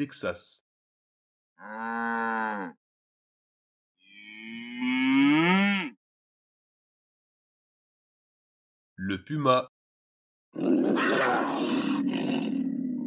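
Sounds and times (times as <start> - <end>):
cattle mooing: 1.6 - 2.8, 4.1 - 5.9.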